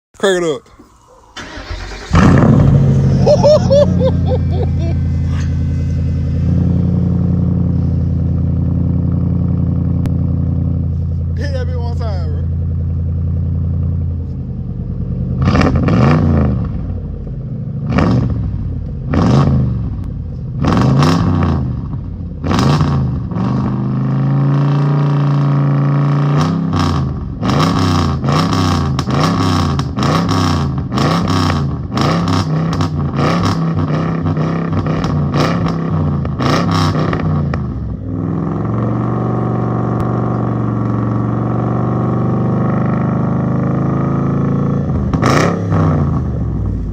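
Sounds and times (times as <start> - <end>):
car engine idling: 0.2 - 15.9, 16.7 - 23.3
car engine revving: 0.8 - 46.9.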